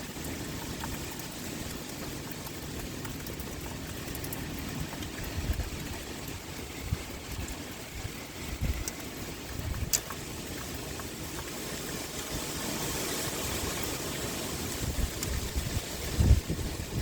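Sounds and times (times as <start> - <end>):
rain hiss: 0.0 - 17.0
wind gusting: 5.1 - 10.2, 14.4 - 17.0.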